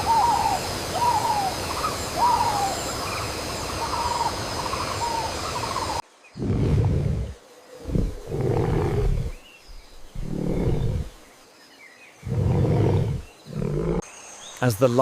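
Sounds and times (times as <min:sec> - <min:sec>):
deep rough animal roars: 0:06.4 - 0:09.4, 0:10.0 - 0:11.2, 0:12.2 - 0:14.0.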